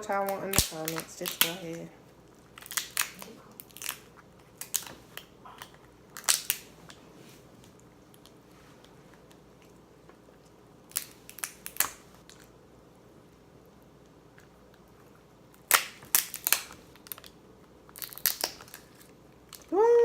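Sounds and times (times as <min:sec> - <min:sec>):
lobster shell cracking: 0:00.0 - 0:06.7, 0:10.8 - 0:12.6, 0:15.5 - 0:19.7.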